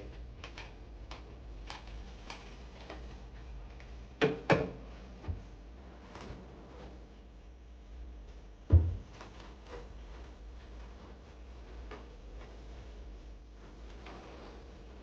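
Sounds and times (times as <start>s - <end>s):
loud knocks: 8.7s - 9.2s.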